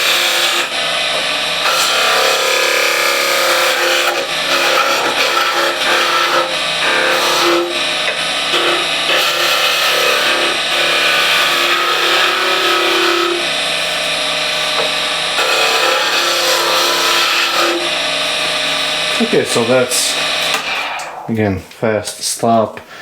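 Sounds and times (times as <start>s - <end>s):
lathe tool cutting wood: 0.0s - 21.5s.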